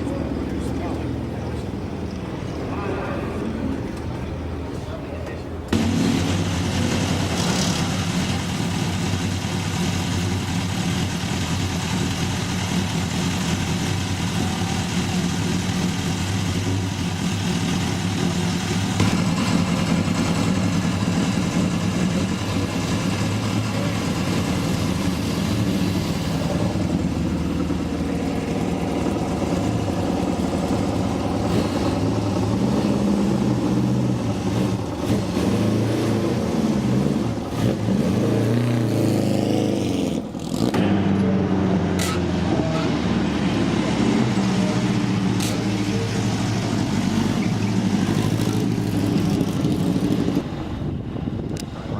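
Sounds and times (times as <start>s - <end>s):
race car engines running: 0.0s - 51.9s.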